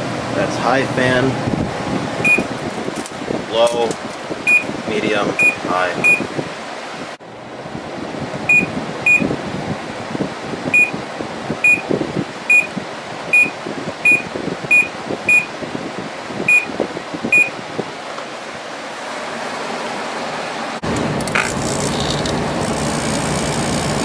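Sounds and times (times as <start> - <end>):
air conditioner fan running: 0.0 - 24.0
short high beeps: 2.2 - 2.5, 4.5 - 4.7, 5.4 - 6.2, 12.5 - 12.7, 14.1 - 15.5, 17.3 - 17.5.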